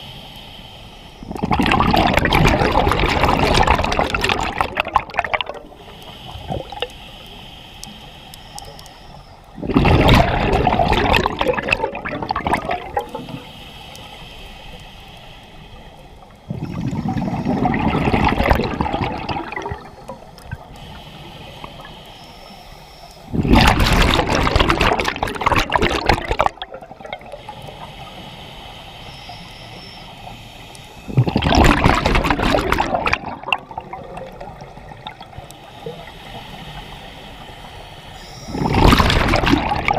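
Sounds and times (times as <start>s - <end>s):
hissing regulator inhalations: 0.0s - 1.9s, 2.6s - 9.8s, 10.4s - 23.4s, 26.2s - 31.8s, 32.7s - 39.9s
underwater exhalation bubbles: 1.3s - 5.7s, 9.6s - 13.2s, 16.5s - 19.9s, 23.3s - 27.4s, 31.1s - 35.3s, 38.5s - 39.9s.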